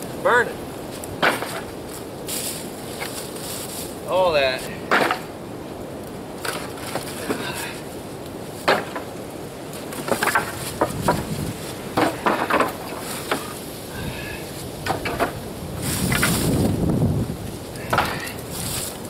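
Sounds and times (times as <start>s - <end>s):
firewood knocking together: 1.0s - 2.0s, 4.8s - 5.4s, 6.4s - 7.8s, 8.6s - 13.6s, 14.8s - 15.4s, 16.1s - 16.5s, 17.8s - 18.4s
wind rushing: 10.4s - 18.9s.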